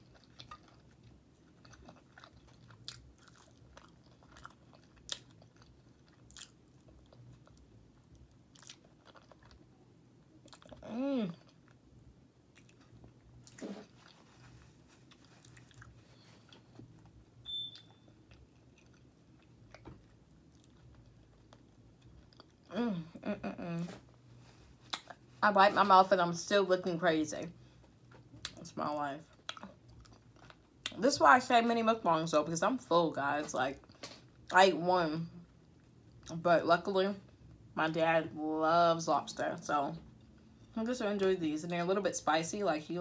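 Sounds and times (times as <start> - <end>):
wet chewing: 0.0 - 9.7, 15.0 - 22.7.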